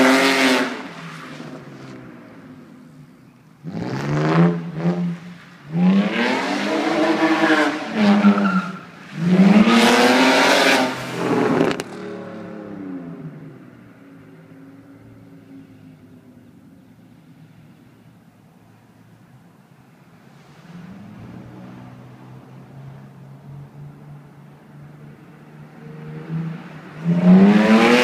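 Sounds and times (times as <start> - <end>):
tyre squeal: 7.4 - 8.9
car engine revving hard: 9.2 - 12.6, 26.2 - 28.0.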